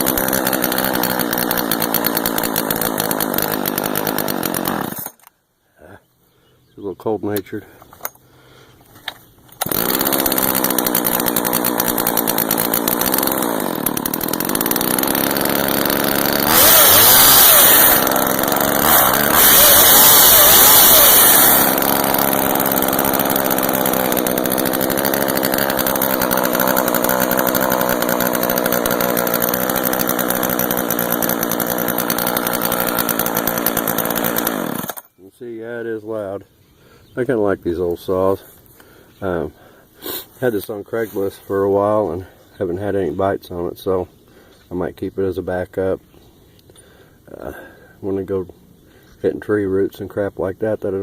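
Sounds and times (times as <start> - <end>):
chainsaw idling and revving: 0.0 - 5.3, 9.6 - 35.2.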